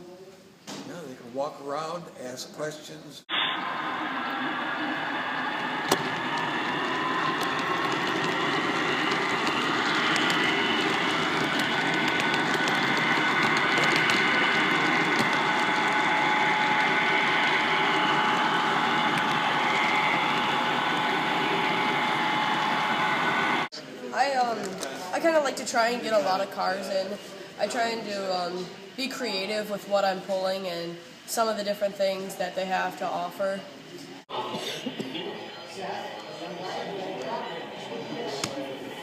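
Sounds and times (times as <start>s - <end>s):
motor whine: 3.3s - 23.7s
model train wheels rumbling: 4.8s - 23.7s.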